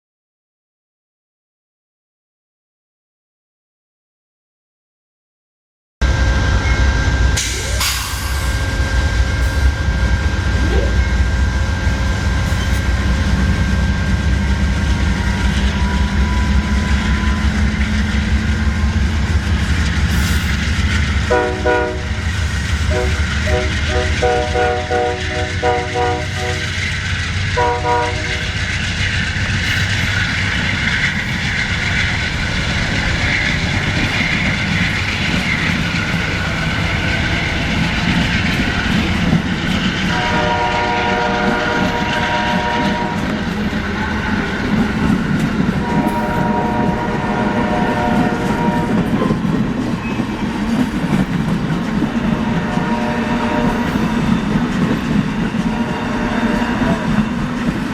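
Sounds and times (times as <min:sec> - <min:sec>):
train wheels rumbling on rails: 0:06.0 - 0:57.9
train horn blasts: 0:21.2 - 0:22.2, 0:22.8 - 0:26.8, 0:27.6 - 0:28.6, 0:40.1 - 0:44.5, 0:45.8 - 0:49.3, 0:52.2 - 0:54.0, 0:55.6 - 0:57.2.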